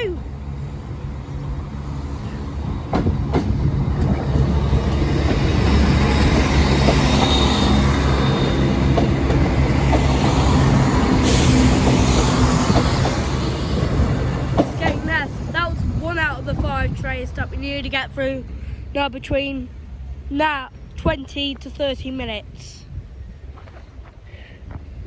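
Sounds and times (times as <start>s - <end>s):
diesel train engine running: 0.0s - 25.0s
train wheel clicks: 8.8s - 13.4s.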